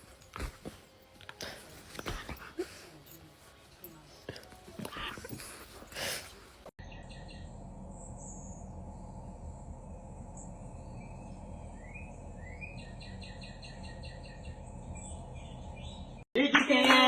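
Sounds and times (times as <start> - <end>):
bird chirps: 6.8 - 8.7, 10.4 - 16.2.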